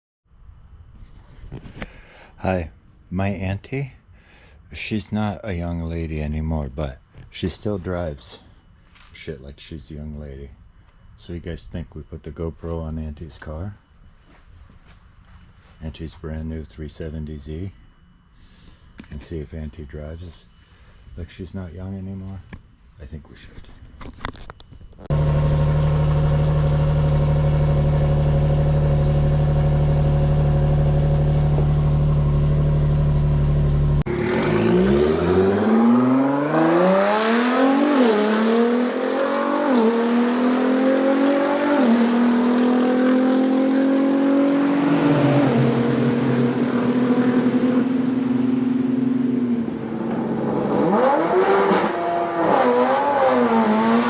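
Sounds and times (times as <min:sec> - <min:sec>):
car engine accelerating through gears: 0:25.1 - 0:54.0.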